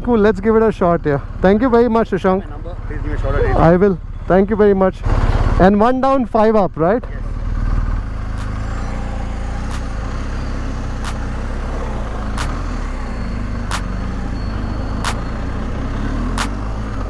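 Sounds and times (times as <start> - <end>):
motorcycle engine idling: 0.0 - 17.0
sharp ticking: 7.2 - 17.0.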